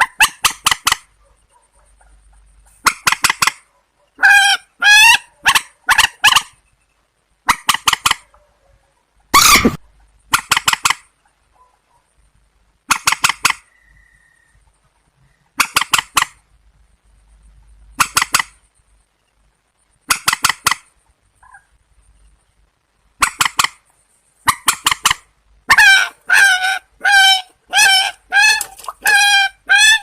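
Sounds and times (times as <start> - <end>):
longer wavering bird calls: 0.0 - 8.4, 9.2 - 12.1, 12.9 - 16.5, 23.2 - 30.0
waterbird harsh calls: 24.6 - 30.0.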